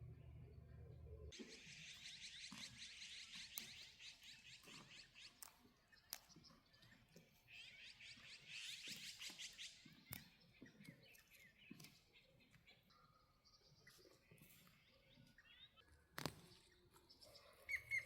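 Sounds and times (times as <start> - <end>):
faint bird chattering: 16.7 - 18.0.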